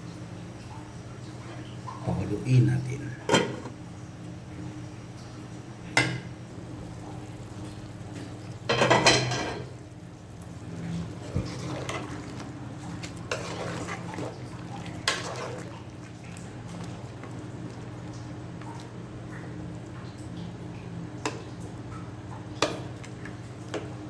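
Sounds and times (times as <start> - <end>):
metal pot and lid clattering: 3.3 - 3.7.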